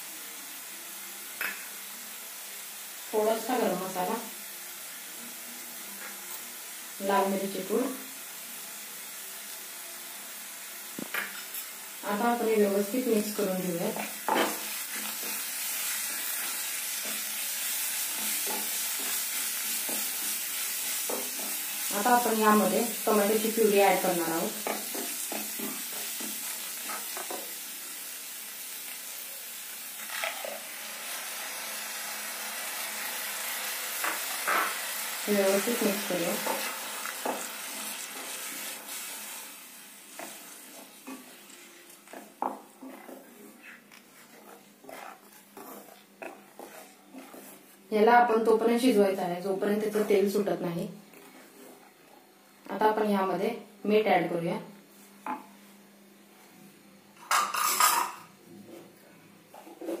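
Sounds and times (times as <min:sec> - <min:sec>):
food sizzling in butter: 0:00.0 - 0:51.8
metal spatula scraping pan: 0:42.1 - 0:47.7.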